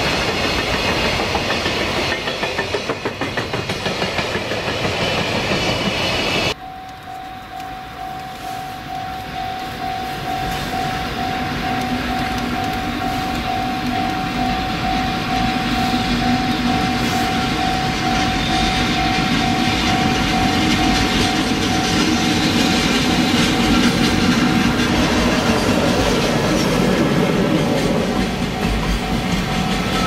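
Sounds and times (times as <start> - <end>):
freight train passing: 0.0 - 30.0
level crossing warning bell: 6.5 - 30.0.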